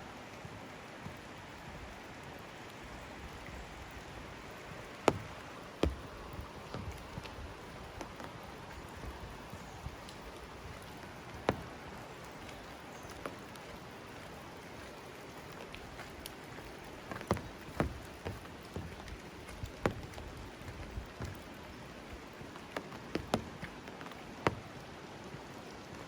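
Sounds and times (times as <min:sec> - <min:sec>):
rain falling: 0:00.0 - 0:26.0
sharp taps of drops: 0:05.0 - 0:07.3, 0:17.1 - 0:19.2, 0:19.8 - 0:21.4, 0:22.8 - 0:24.7.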